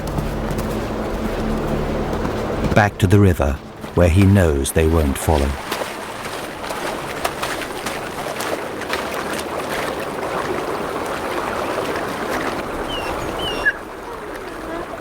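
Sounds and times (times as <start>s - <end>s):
water rushing: 0.0s - 15.0s
animal splashing through river: 3.7s - 15.0s.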